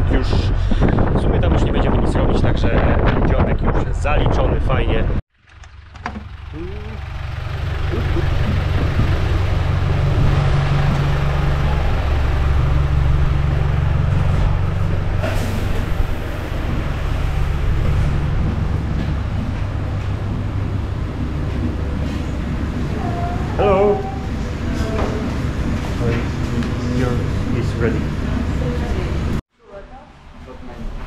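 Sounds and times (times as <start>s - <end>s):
road and wind noise: 0.0s - 29.4s
vehicle engine running: 5.3s - 29.4s.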